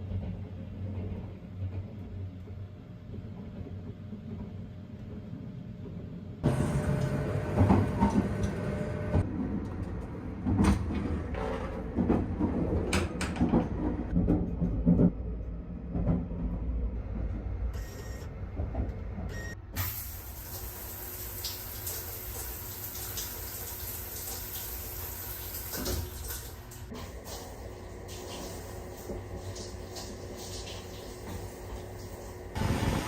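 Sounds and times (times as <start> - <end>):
train rumbling: 0.0 - 20.5, 25.9 - 33.0
knocks and clatters: 7.0 - 16.7.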